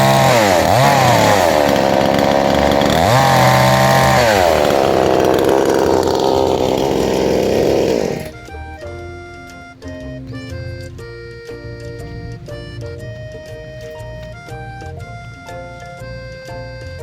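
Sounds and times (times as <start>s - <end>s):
chainsaw running: 0.0s - 8.4s.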